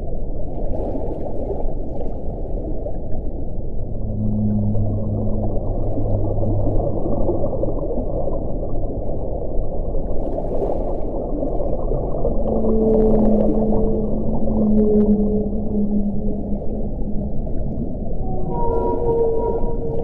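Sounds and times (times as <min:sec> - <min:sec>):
low steady tone: 0:02.9 - 0:10.1, 0:11.7 - 0:20.0.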